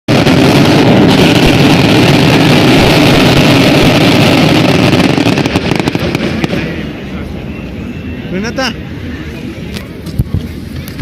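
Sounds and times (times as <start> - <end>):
sharp firework cracks: 0.1 - 7.0
fireworks hissing and crackling: 0.1 - 11.0.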